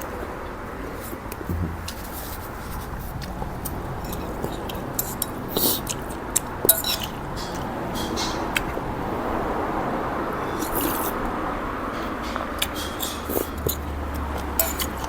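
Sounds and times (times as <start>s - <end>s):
steady background noise: 0.0s - 15.0s
utensils clicking against a bowl: 12.2s - 15.0s.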